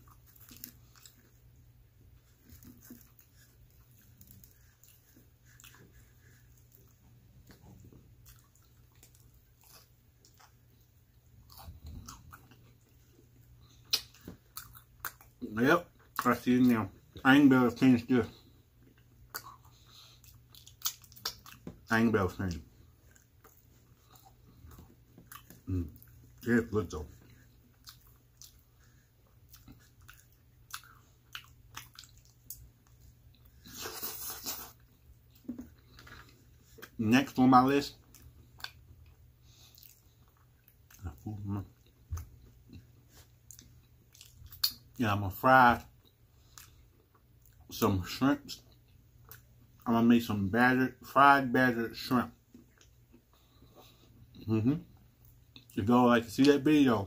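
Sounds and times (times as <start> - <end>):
person biting and chewing pizza: 0.0 - 10.7, 11.4 - 15.4, 18.3 - 21.9, 22.8 - 37.0.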